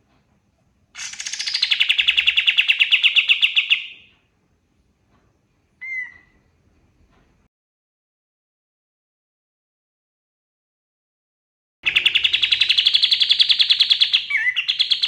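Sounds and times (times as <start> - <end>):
bird rattling trill: 1.0 - 3.9, 11.8 - 15.0.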